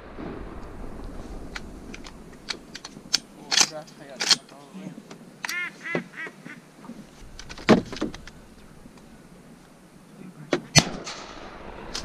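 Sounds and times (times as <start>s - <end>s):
duck quacks: 5.5s - 6.6s.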